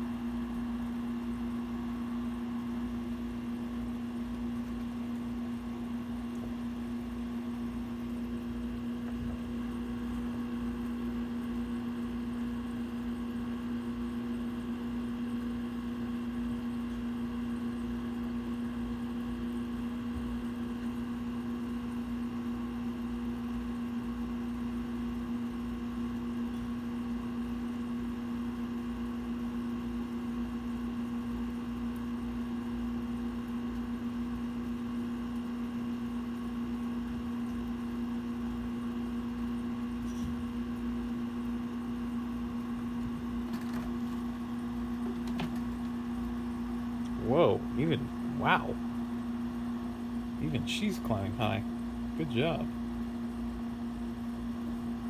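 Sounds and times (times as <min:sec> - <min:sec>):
steady machine hum: 0:00.0 - 0:24.6, 0:34.3 - 0:55.0.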